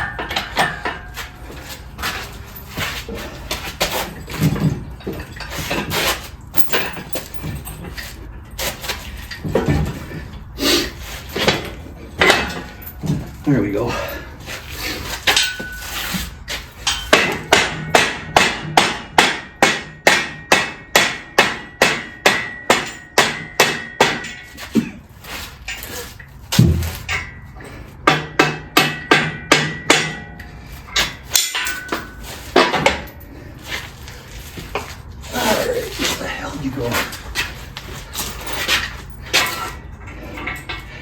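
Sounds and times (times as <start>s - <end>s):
hammer striking metal: 16.9s - 24.5s, 28.0s - 33.1s.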